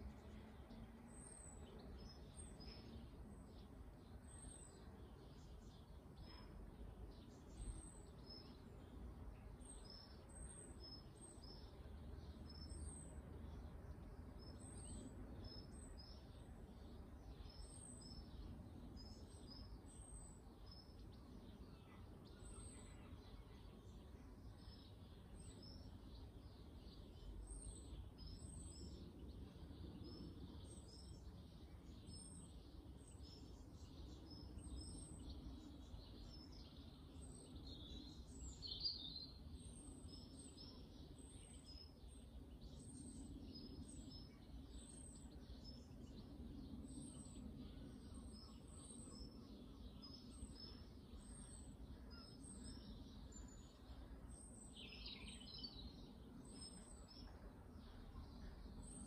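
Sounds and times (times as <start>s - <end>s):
garden birds chirping: 0.0s - 59.0s
low steady background rumble: 0.0s - 59.0s.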